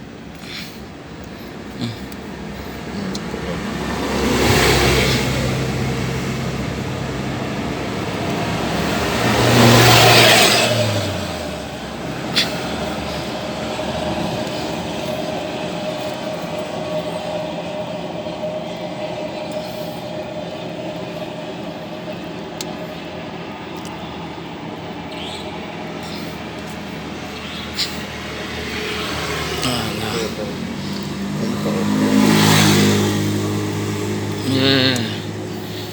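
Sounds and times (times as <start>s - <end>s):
traffic engine hum: 0.0s - 35.9s
vehicle passing: 1.6s - 35.9s.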